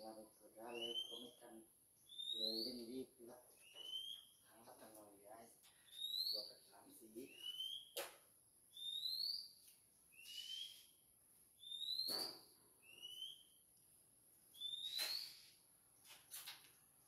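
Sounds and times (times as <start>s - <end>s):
bird whistling: 0.7s - 1.4s, 2.1s - 2.9s, 3.6s - 4.4s, 5.8s - 6.5s, 7.2s - 8.0s, 8.7s - 9.5s, 10.1s - 11.0s, 11.6s - 13.6s, 14.5s - 15.5s.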